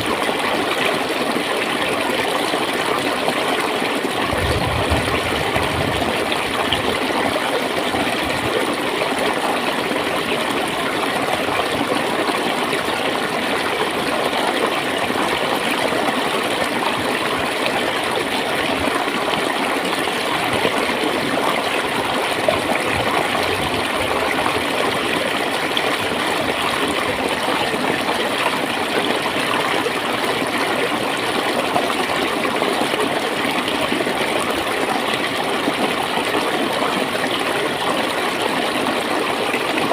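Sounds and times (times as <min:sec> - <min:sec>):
water gurgling: 0:00.0 - 0:39.9.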